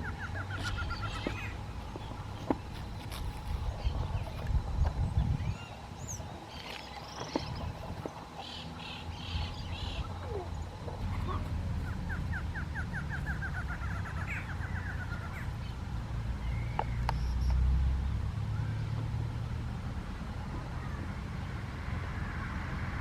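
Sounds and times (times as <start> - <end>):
bird trill: 0.0 - 4.5, 5.2 - 15.8
birds chirping and whistling: 0.0 - 15.8, 16.4 - 17.6.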